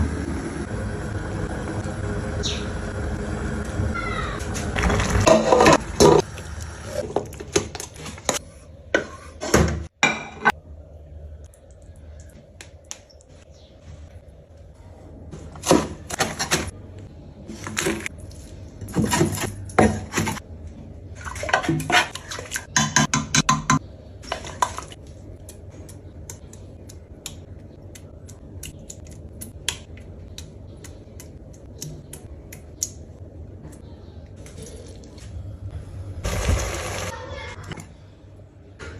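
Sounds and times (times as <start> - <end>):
pots pans and cutlery clattering: 5.0 - 6.2.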